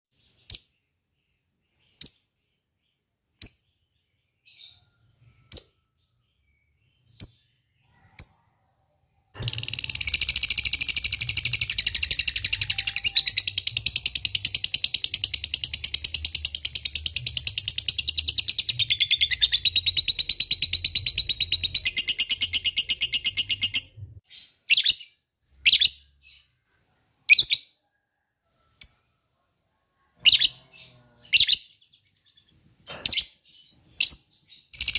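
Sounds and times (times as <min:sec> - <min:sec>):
fast chattering bird trill: 0:09.4 - 0:23.7.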